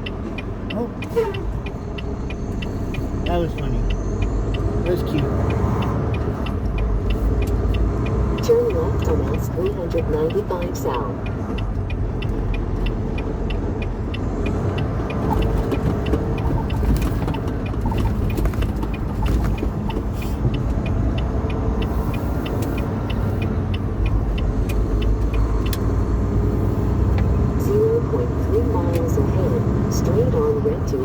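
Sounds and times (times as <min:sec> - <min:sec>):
truck engine and road noise: 0:00.0 - 0:31.0
turn signal clicking: 0:00.0 - 0:31.0.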